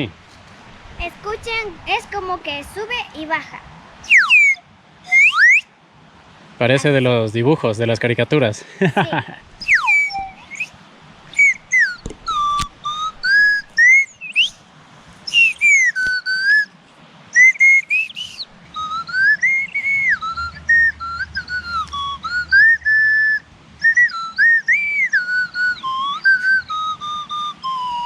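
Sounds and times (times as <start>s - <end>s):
flute whistling short notes: 4.0s - 5.7s, 9.6s - 14.6s, 15.3s - 16.7s, 17.3s - 28.0s.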